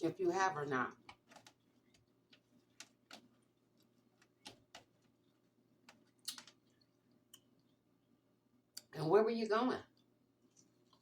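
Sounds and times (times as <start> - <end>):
person chewing food: 1.3 - 7.8, 10.0 - 11.0.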